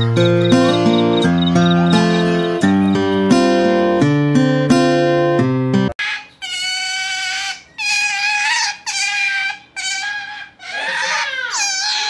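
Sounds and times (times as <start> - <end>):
otter whining squeals: 0.0 - 3.3.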